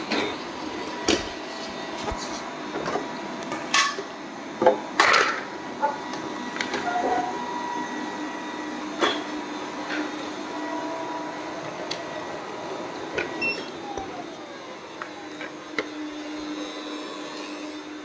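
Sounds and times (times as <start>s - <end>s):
robot vacuum humming: 0.0s - 18.0s.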